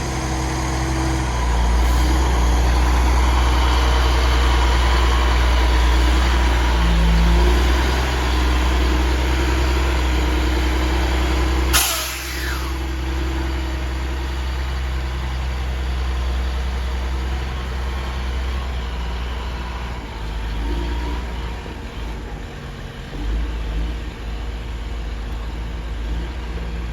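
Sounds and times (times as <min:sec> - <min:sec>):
diesel truck engine running: 0:00.0 - 0:26.9
sharp downward sweeping sound: 0:11.8 - 0:12.8.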